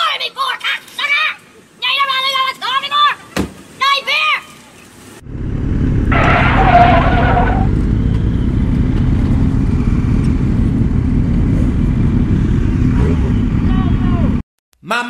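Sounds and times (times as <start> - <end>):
motorcycle engines idling: 7.6 - 14.4.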